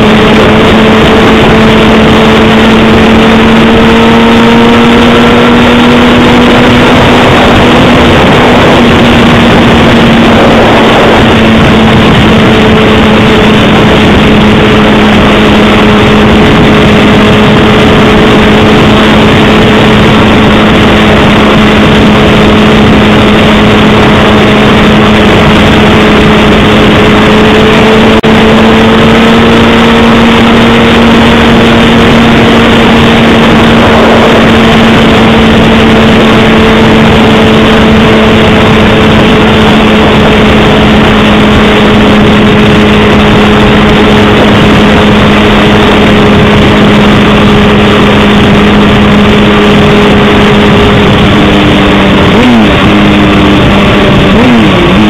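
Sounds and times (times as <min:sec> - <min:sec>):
motorcycle engine cruising: 0:00.0 - 0:55.0
wind rush over microphone: 0:00.0 - 0:55.0.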